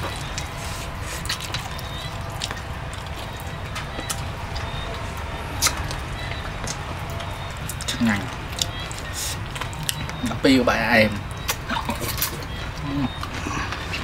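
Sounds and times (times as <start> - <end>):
lip smacks: 0.0 - 4.9, 11.3 - 14.0
man chewing: 0.0 - 14.0.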